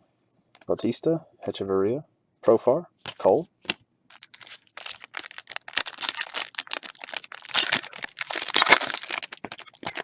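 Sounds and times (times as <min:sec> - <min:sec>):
wrappers crinkling: 0:04.1 - 0:10.0.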